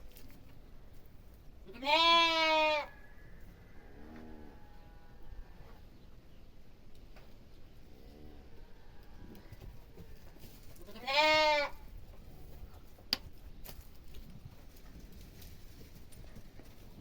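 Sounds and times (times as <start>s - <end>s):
farm animal bleating: 1.6s - 3.0s, 3.6s - 5.7s, 10.4s - 12.6s.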